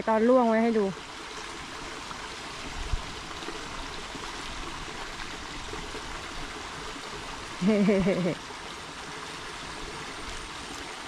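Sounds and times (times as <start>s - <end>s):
shallow stream running: 0.0s - 11.0s.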